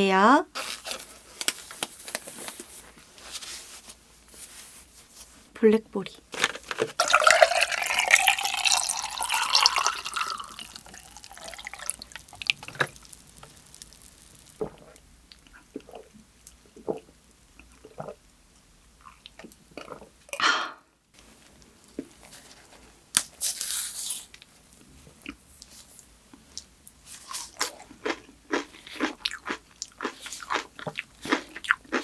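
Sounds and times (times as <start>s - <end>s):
tea poured into a cup: 7.0s - 14.8s.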